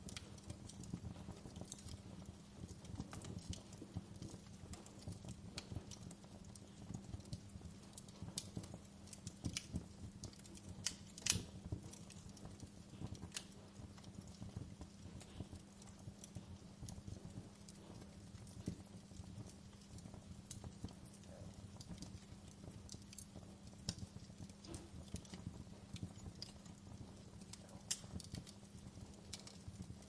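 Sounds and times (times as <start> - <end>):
low rumble of fire: 0.0 - 30.0
wood fire crackling: 0.0 - 30.0.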